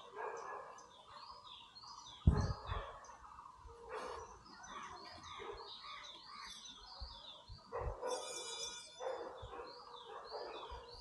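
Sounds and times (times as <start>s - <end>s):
birds chirping: 0.0s - 11.0s
loud low thump: 2.3s - 2.6s.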